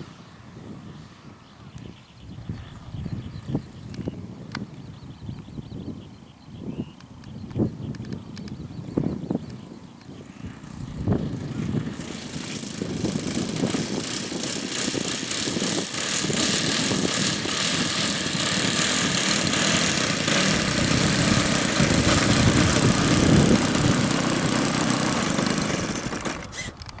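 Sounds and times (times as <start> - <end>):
motor running: 10.1 - 26.9.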